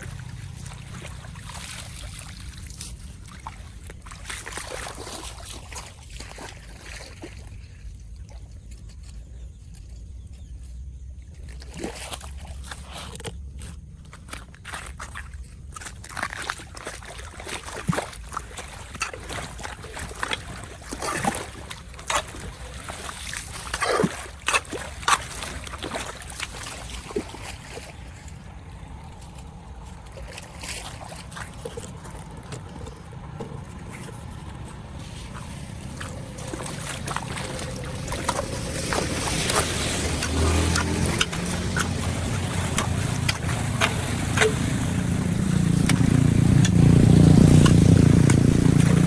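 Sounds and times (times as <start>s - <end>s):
splashing in shallow water: 0.0s - 9.6s, 11.2s - 49.0s
knocks and scrapes in water: 11.4s - 49.0s
water flowing into drain: 35.2s - 49.0s.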